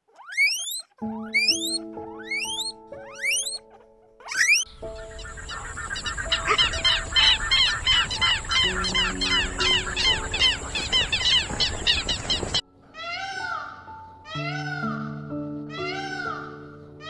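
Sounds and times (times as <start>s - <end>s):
louder animal calls: 0.0s - 4.6s
rapid chirping animal calls: 0.0s - 13.5s
gentle background music: 0.0s - 17.0s.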